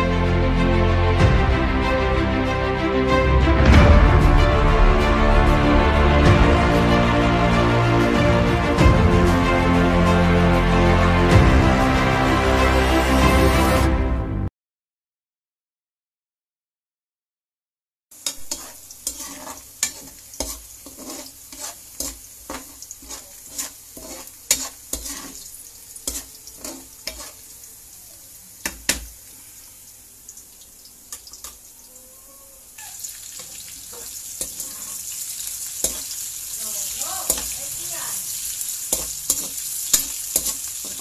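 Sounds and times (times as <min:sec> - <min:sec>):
spatula tapping and scraping a pan: 0:18.2 - 0:27.4, 0:28.6 - 0:29.1, 0:33.4 - 0:35.0, 0:35.8 - 0:36.1, 0:37.3 - 0:37.6, 0:38.9 - 0:41.0
garlic and onion sizzling in oil: 0:18.2 - 0:41.0.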